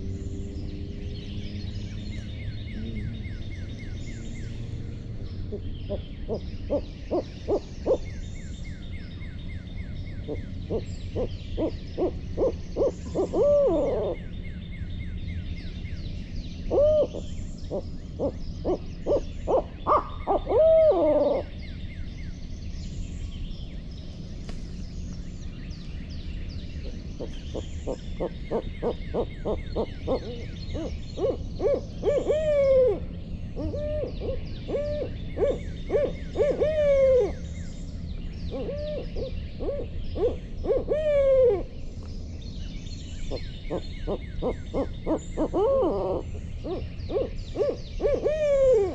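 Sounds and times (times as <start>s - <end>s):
owl hooting: 5.5s - 8.2s, 10.2s - 14.3s, 16.7s - 21.6s, 26.8s - 37.5s, 38.5s - 41.8s, 43.3s - 48.9s.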